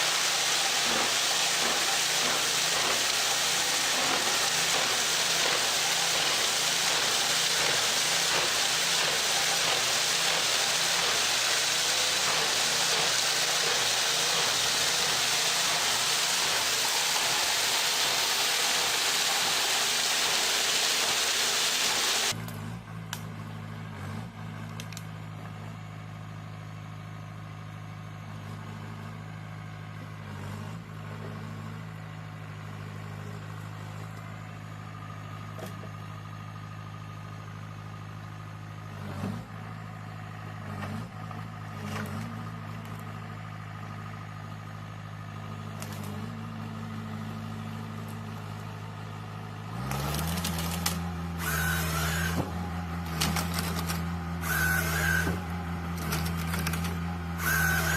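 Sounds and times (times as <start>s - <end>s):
heavy machine engine running: 0.0s - 57.9s.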